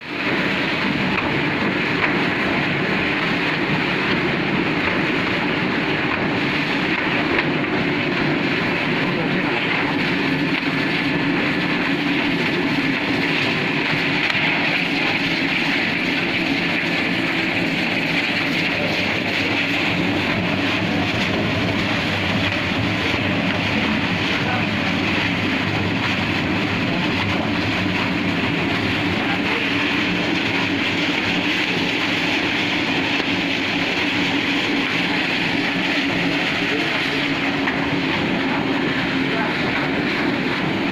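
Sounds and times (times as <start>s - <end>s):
machine running: 0.0s - 40.9s.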